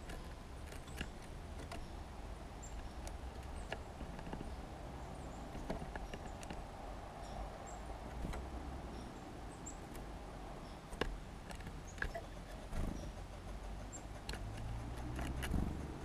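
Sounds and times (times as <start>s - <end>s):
birds pecking and scratching: 0.0s - 16.0s.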